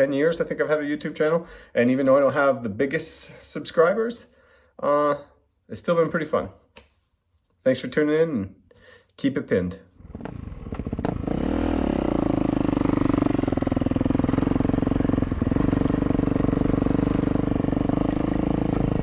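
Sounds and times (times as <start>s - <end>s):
dirt bike engine revving: 10.0s - 19.0s.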